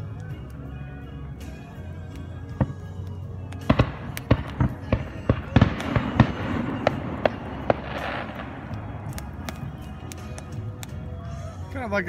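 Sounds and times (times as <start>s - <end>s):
fireworks crackling fizz: 3.5s - 11.0s
fireworks bangs and cracks: 3.6s - 11.0s.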